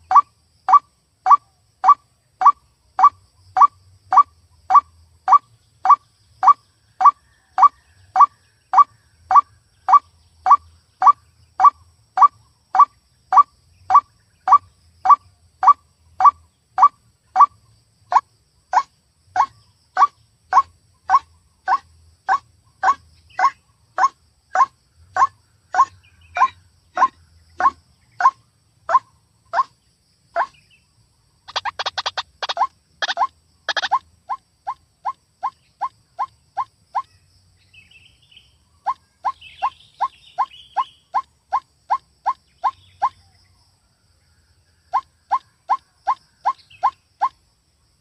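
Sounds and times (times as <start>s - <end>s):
recorded waterhen call: 0.0s - 29.7s, 30.4s - 30.6s, 31.5s - 37.1s, 38.8s - 43.2s.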